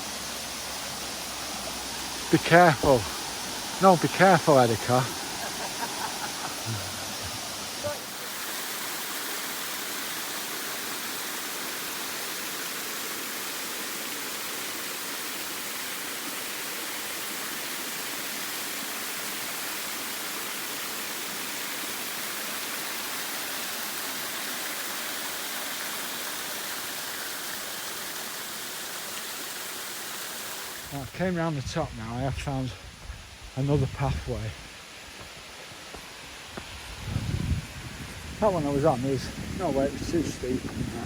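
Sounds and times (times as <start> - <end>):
waterfall rushing: 0.0 - 31.1.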